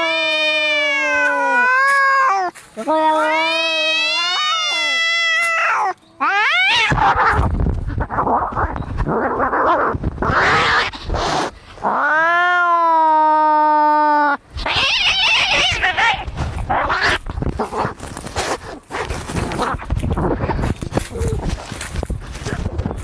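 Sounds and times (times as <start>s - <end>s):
cat yowling: 0.0s - 7.4s, 11.8s - 17.2s
cats hissing and screeching: 0.0s - 22.8s.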